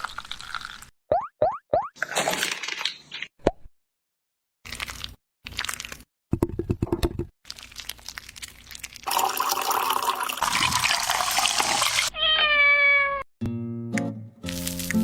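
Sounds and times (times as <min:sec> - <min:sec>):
cat meowing: 0:12.1 - 0:13.3.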